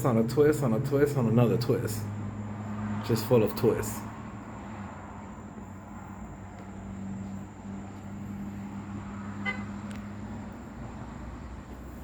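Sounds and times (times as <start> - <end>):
road traffic hum: 0.0 - 12.0
car horn toot: 9.4 - 9.8.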